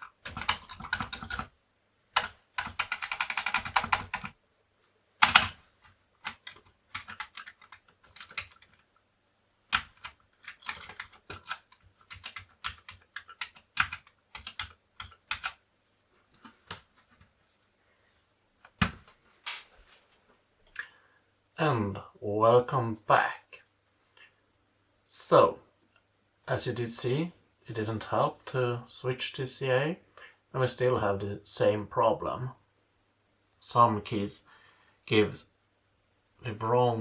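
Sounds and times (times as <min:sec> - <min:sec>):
keyboard keys clacking: 0:02.2 - 0:04.3, 0:05.2 - 0:08.9, 0:09.7 - 0:15.6.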